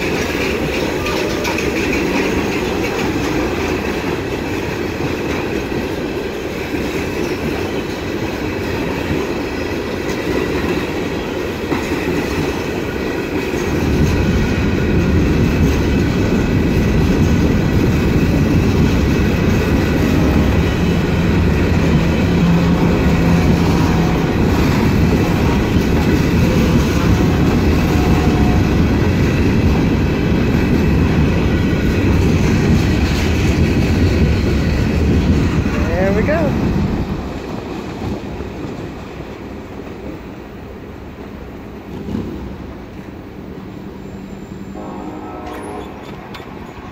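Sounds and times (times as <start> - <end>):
train wheels rumbling on rails: 0.0 - 46.9.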